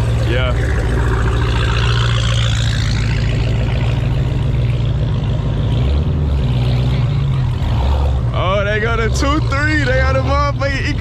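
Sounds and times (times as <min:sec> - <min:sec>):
car engine droning: 0:00.0 - 0:11.0.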